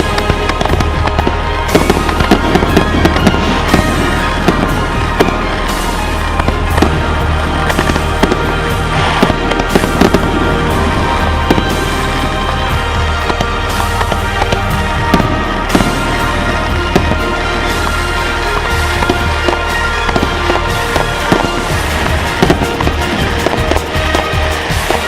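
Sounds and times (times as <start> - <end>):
fireworks bangs and pops: 0.0 - 25.0
music playing: 0.0 - 25.0.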